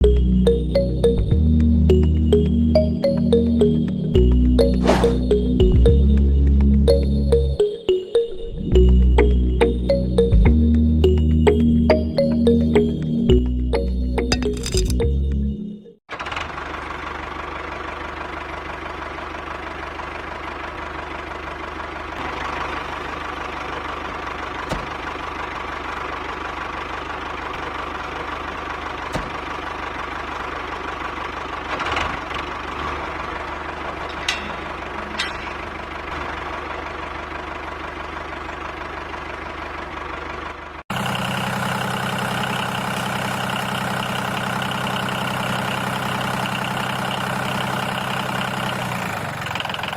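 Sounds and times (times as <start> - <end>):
sharp clicks and knocks: 14.3 - 15.0.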